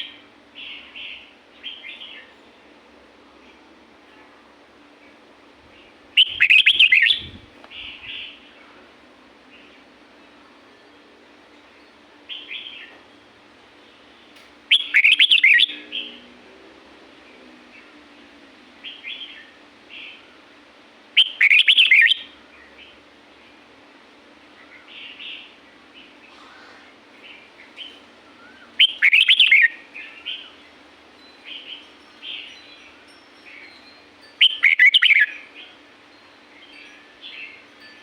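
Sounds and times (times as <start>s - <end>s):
faint steady hum: 0.0s - 38.0s
bird warbling song: 5.7s - 8.6s, 14.7s - 16.2s, 21.2s - 23.0s, 24.6s - 35.8s
soft bird chirps: 5.8s - 8.8s, 24.6s - 35.8s.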